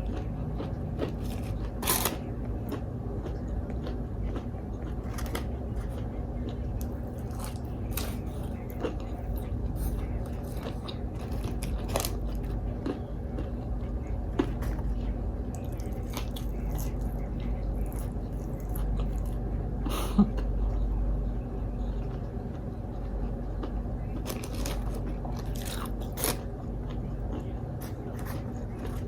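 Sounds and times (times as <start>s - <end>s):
crunchy eating and chewing: 0.0s - 29.0s
low hum: 0.0s - 29.0s.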